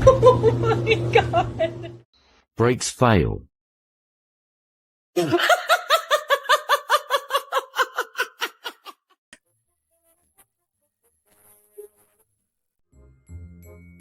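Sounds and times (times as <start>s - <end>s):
person laughing: 0.0s - 2.0s, 5.2s - 9.2s.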